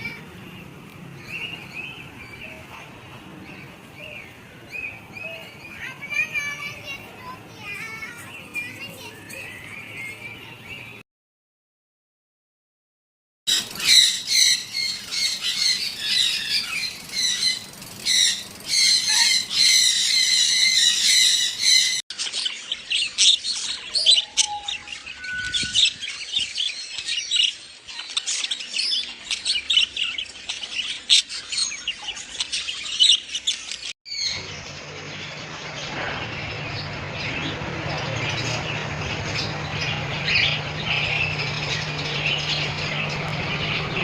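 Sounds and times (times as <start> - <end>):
parrots chirping and squawking: 13.5 - 44.0.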